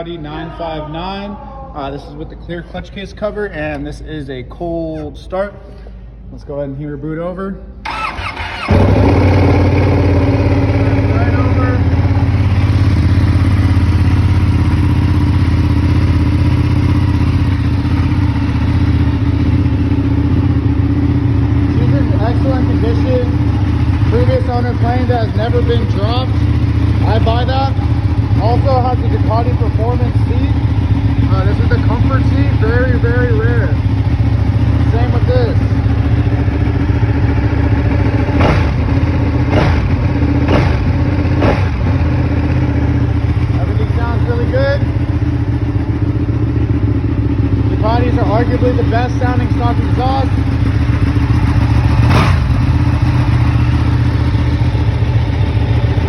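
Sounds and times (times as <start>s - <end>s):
engine revving blips: 7.8s - 11.1s, 38.2s - 42.1s, 51.4s - 52.8s
motorcycle engine idling: 7.8s - 56.0s.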